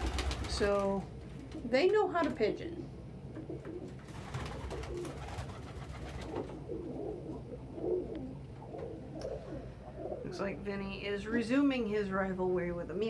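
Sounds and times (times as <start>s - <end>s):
pigeons cooing: 0.0s - 1.7s, 2.8s - 10.6s.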